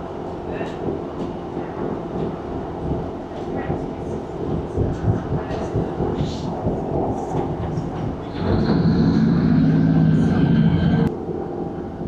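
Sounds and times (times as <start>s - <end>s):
train cabin rumble: 0.0s - 12.0s
humming drone: 8.2s - 12.0s.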